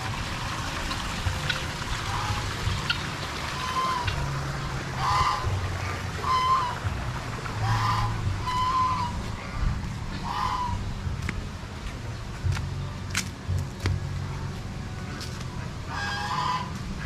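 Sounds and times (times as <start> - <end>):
low steady rumble: 0.0 - 17.0
bird calling: 1.4 - 4.2.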